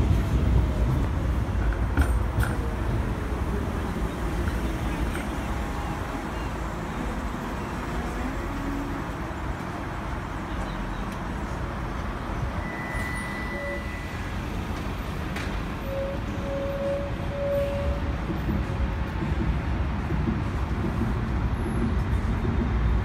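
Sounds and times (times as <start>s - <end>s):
train rumbling past: 0.0s - 23.0s.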